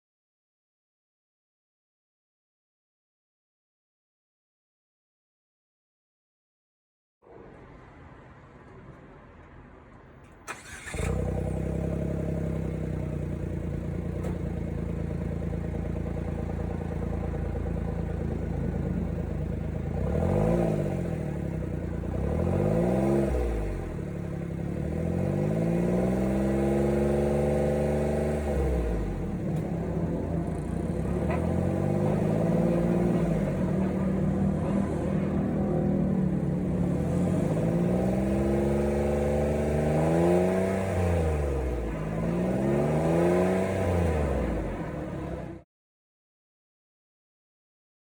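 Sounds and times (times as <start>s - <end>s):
car engine idling and revving: 7.3s - 45.6s.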